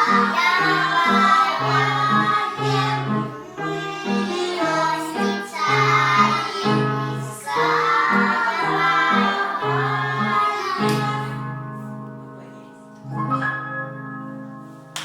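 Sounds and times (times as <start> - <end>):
children singing: 0.0 - 11.6.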